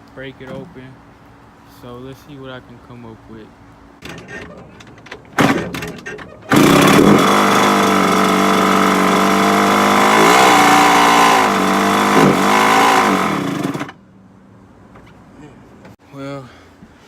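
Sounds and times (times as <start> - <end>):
dirt bike engine running: 6.5 - 13.9.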